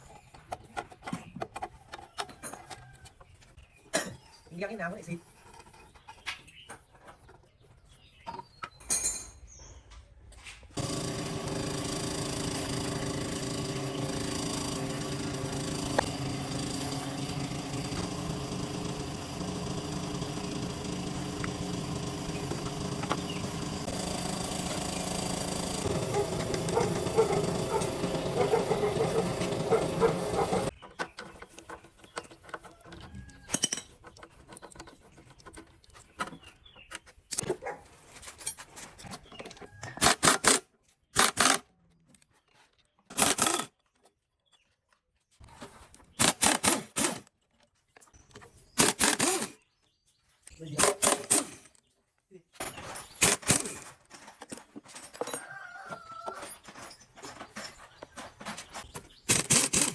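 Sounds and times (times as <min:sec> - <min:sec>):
machine running steadily: 0:10.8 - 0:30.7.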